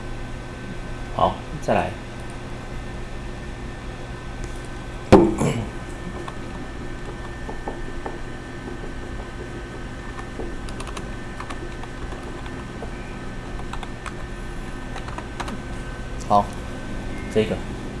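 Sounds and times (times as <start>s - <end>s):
steady low hum: 0.0s - 18.0s
computer keyboard typing: 6.1s - 16.5s.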